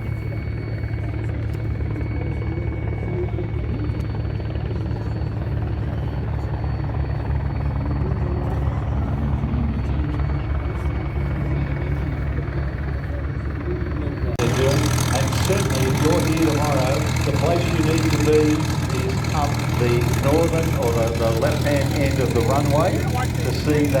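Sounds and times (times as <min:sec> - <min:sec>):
helicopter rotors thrumming: 0:00.0 - 0:24.0
faint high whine: 0:05.0 - 0:24.0.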